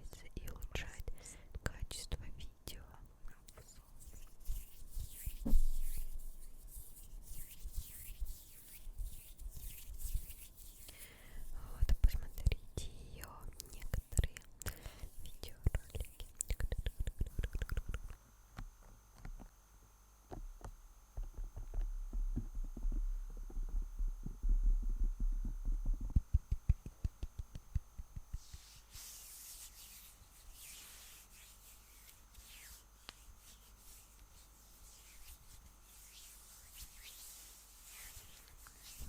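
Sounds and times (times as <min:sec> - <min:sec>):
fingertips tapping on microphone: 0:15.6 - 0:18.2.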